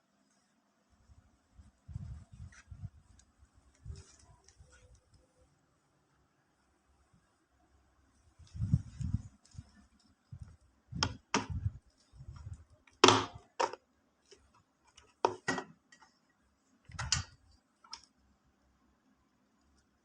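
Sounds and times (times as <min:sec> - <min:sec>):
hard objects knocking and clicking: 0:15.0 - 0:16.1.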